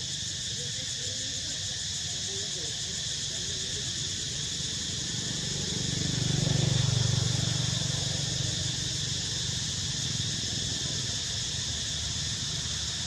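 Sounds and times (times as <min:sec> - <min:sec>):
insect chorus buzzing: 0:00.0 - 0:13.0
passing vehicle engine: 0:04.4 - 0:13.0.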